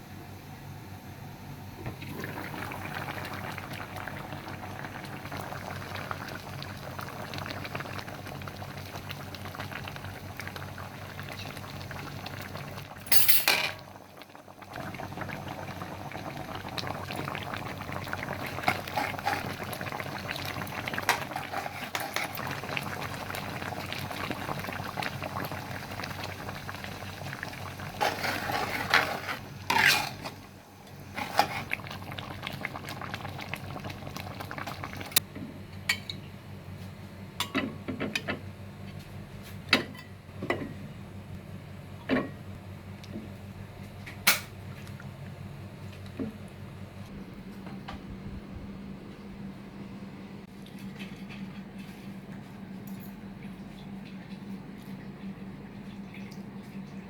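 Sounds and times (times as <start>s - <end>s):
curry bubbling in pot: 1.9s - 13.0s, 13.8s - 35.2s.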